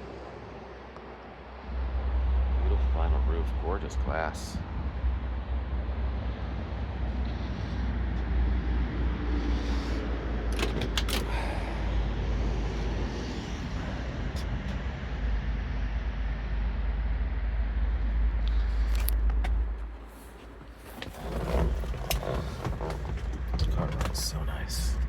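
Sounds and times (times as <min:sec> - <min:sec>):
car engine idling: 0:08.9 - 0:15.3, 0:17.8 - 0:25.0.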